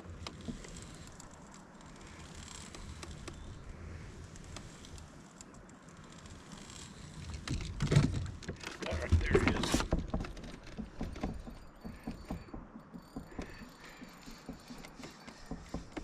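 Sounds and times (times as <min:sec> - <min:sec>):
water lapping around kayak: 0:00.0 - 0:16.0.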